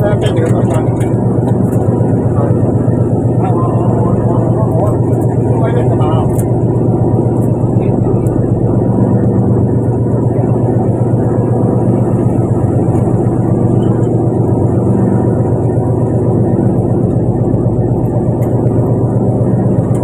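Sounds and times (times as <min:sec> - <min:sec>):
boat engine humming: 0:00.0 - 0:20.0.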